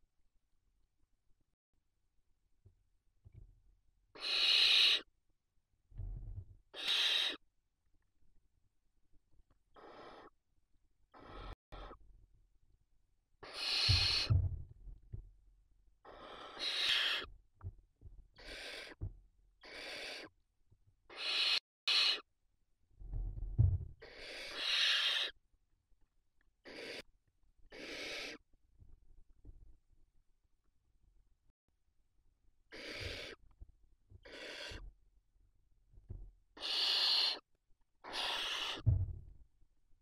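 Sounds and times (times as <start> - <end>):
owl nestlings hissing begging calls: 4.1 - 5.1, 6.7 - 7.4, 9.8 - 10.4, 11.1 - 12.0, 13.4 - 14.3, 16.0 - 17.3, 18.4 - 19.0, 19.6 - 20.4, 21.1 - 22.3, 24.0 - 25.4, 26.6 - 27.1, 27.7 - 28.4, 32.7 - 33.4, 34.2 - 34.8, 36.6 - 38.8
low thumps: 14.3 - 15.2, 23.0 - 24.0, 38.8 - 39.4.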